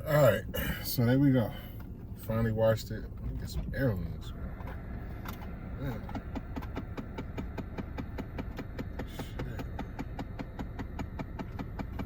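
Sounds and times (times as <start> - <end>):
low rumble: 2.9 - 12.0
rapid mechanical clicking: 6.0 - 12.0.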